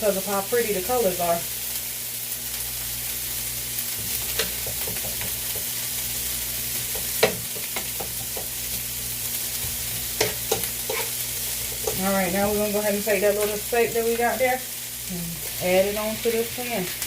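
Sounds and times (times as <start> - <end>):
vegetables sizzling in oil: 0.0 - 17.0
stirring clicks and scrapes: 9.6 - 12.5.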